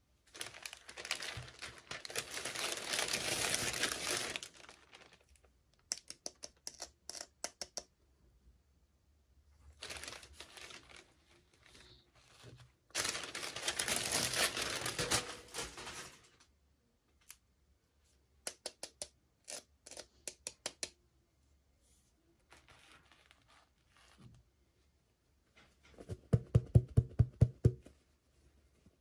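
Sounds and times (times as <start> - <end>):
packaging rustling and tearing: 0.3 - 5.4, 9.8 - 12.0, 12.9 - 16.4
small clicks and taps: 5.8 - 7.9, 18.4 - 19.2, 19.9 - 21.0.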